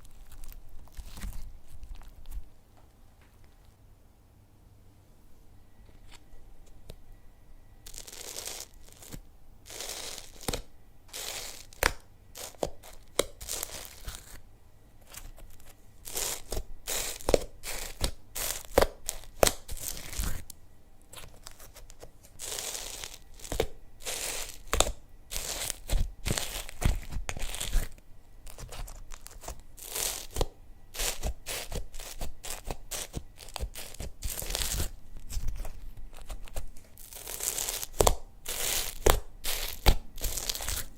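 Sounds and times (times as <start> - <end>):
hands squishing slime: 7.9 - 14.4, 15.0 - 20.5, 21.1 - 40.9.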